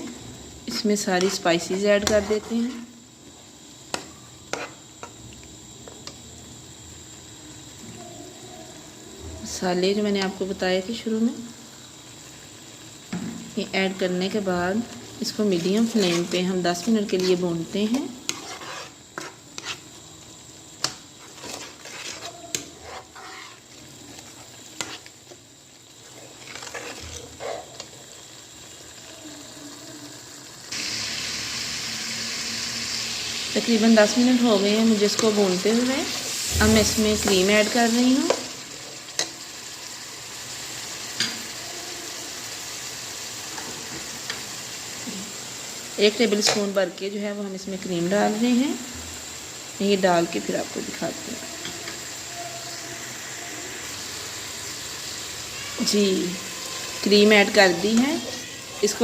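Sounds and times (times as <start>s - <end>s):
oil and paste sizzling: 0.0s - 59.0s
spoon scraping a pan: 1.1s - 3.0s, 3.9s - 5.1s, 15.2s - 20.0s, 20.8s - 25.4s, 26.0s - 28.0s, 55.6s - 59.0s.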